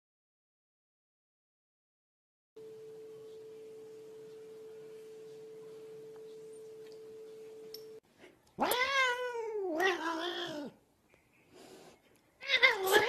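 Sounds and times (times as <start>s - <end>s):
steady pure tone: 2.6s - 8.0s
cat yowling: 8.6s - 10.8s, 12.4s - 13.0s.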